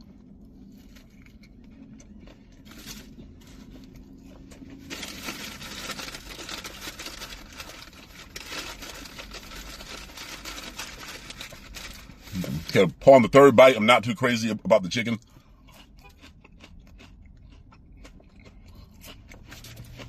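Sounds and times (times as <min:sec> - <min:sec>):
paper wrapper rustling: 0:04.8 - 0:12.7.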